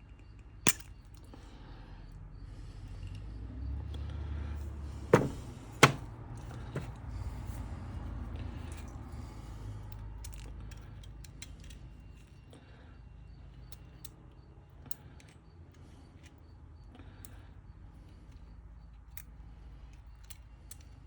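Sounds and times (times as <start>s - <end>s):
small metal parts clicking: 0.0s - 1.3s, 9.9s - 12.5s, 13.5s - 16.4s, 18.3s - 21.0s.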